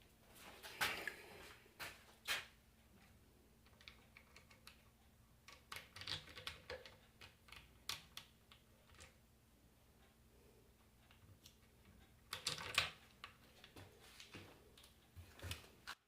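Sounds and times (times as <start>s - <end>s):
small parts clicking and tapping: 3.0s - 9.2s, 10.8s - 16.0s.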